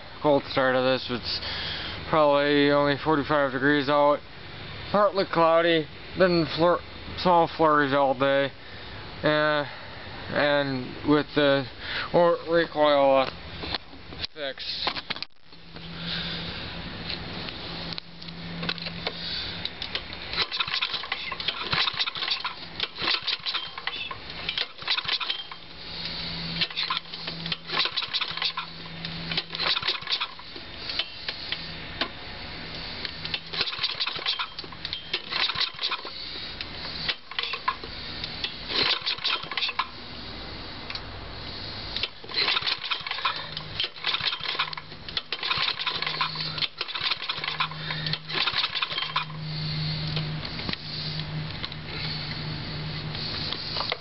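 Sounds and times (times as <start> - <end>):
small engine rattling and clattering: 18.3 - 40.0, 41.9 - 50.9.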